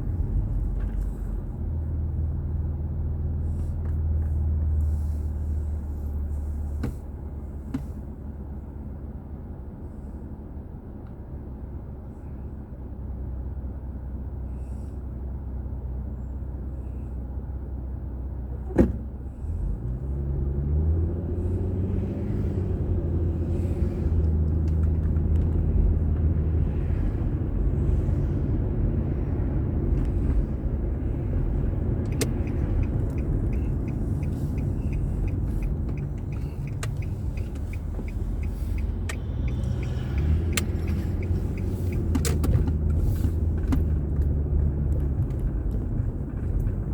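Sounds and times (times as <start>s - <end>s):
road rumble: 0.0s - 46.9s
car pulling away: 18.5s - 46.9s
car engine idling: 22.3s - 46.9s
faint regular ticking: 32.1s - 42.1s.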